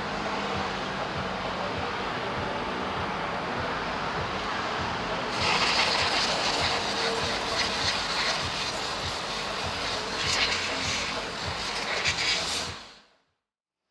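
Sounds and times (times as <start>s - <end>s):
aerosol spray hissing: 5.3s - 13.0s.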